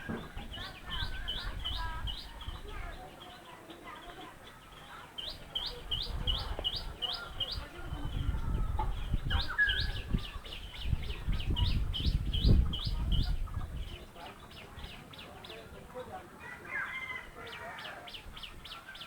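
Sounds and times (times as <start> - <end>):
wind rumble on microphone: 0.0 - 3.0, 5.8 - 15.0.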